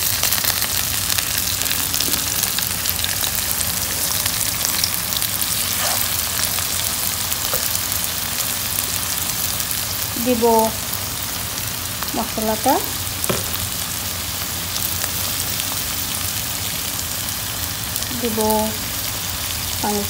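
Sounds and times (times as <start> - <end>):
oil spattering crackles: 0.0 - 10.1
onions sizzling in hot oil: 0.0 - 20.0.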